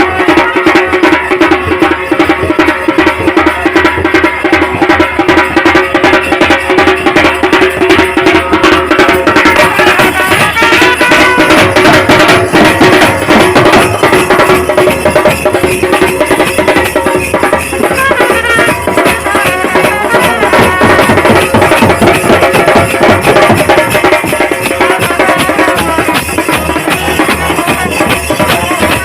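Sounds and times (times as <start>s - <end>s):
drums beaten fast: 0.0s - 29.0s
folk band music: 8.6s - 15.7s, 17.0s - 29.0s.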